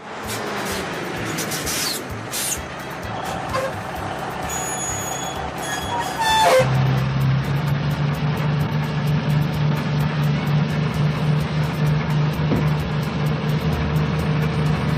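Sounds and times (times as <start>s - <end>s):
cartoon engine humming: 0.0s - 7.6s
cartoon whistle pitch glides: 3.2s - 6.8s.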